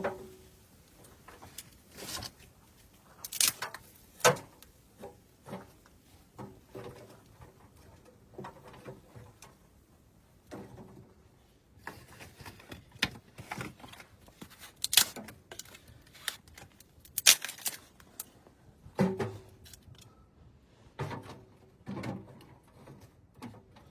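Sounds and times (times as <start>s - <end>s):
objects being handled: 0.0s - 9.8s, 10.5s - 20.2s.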